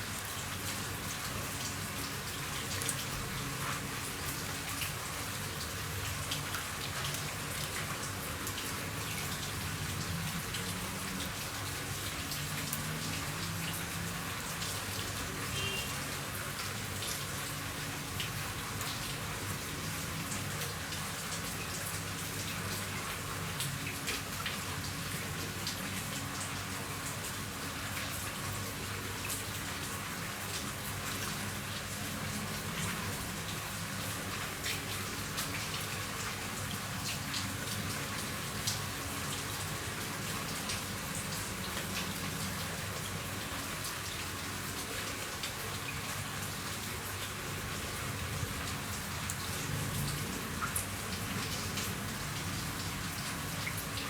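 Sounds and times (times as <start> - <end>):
rain falling on a roof: 0.0 - 54.0.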